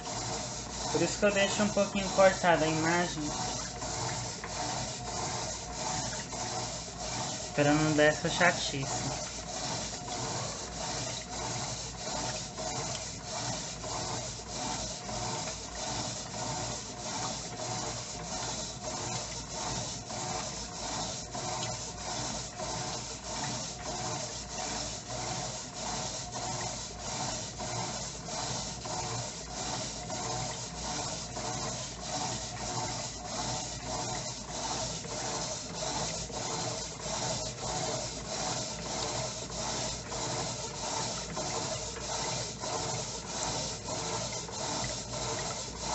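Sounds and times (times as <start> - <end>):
washing machine churning clothes: 0.0 - 45.9.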